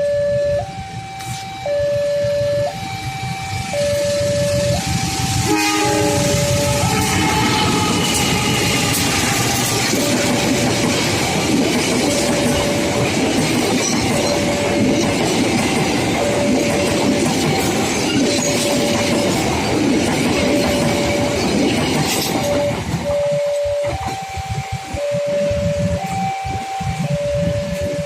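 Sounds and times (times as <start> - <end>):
electronic warning tone: 0.0 - 28.0
train wheels clattering on rails: 3.2 - 28.0
train horn: 4.0 - 10.4.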